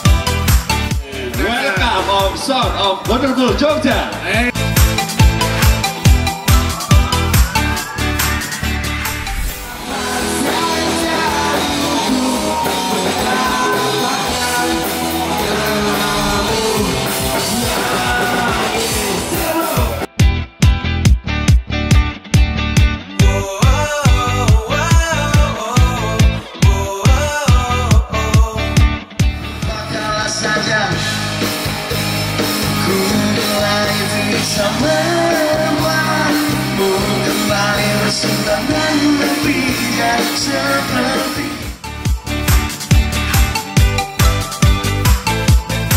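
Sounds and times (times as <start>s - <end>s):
band playing rock music: 0.0s - 45.9s
drums: 0.0s - 45.9s
electric guitar: 4.3s - 45.9s
person singing: 5.8s - 20.1s, 23.2s - 28.8s, 32.7s - 41.8s.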